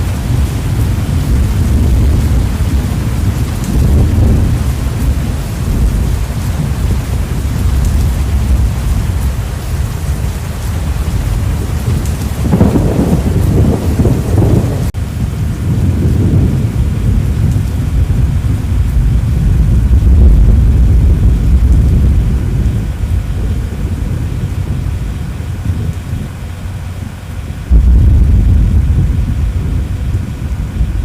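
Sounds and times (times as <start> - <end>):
rain: 0.0 - 31.0
wind buffeting microphone: 0.0 - 31.0.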